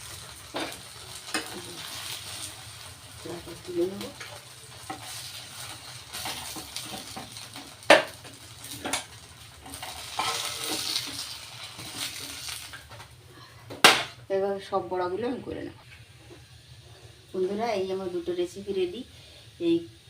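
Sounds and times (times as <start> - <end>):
fritters sizzling in hot oil: 0.0 - 14.3
spatula scraping in pan: 4.1 - 13.0.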